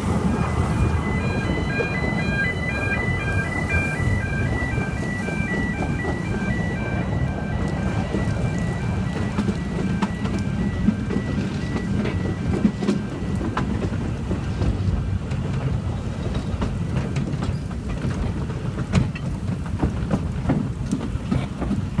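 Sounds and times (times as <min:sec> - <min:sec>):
two-tone crossing alarm: 0:00.0 - 0:15.0
clicks and knocks of train: 0:00.0 - 0:22.0
train wheels rumbling on rail: 0:00.0 - 0:22.0.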